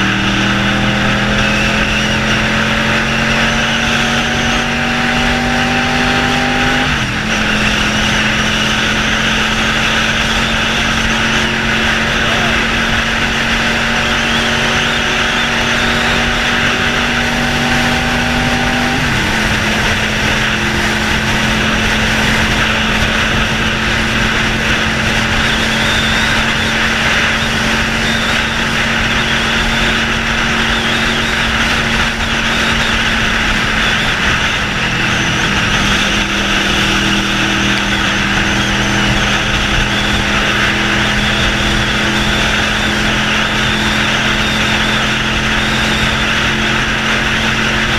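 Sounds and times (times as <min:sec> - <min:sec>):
motorcycle engine without muffler: 0:00.0 - 0:47.9.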